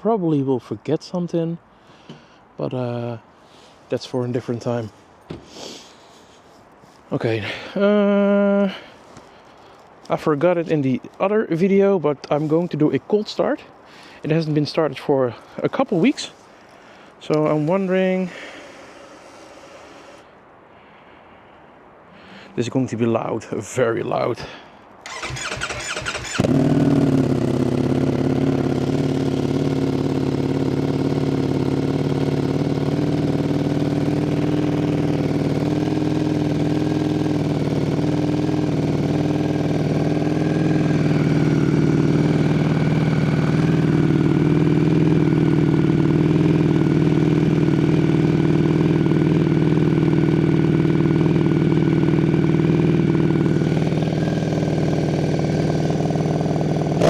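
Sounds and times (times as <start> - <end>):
motorcycle engine cold start: 25.0 - 48.2
motorcycle engine idling loudly: 25.1 - 57.0.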